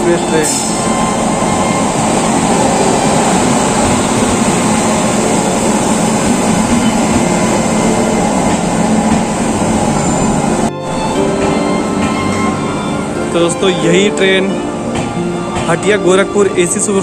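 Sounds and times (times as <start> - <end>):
train coaches rumbling past: 0.0 - 17.0.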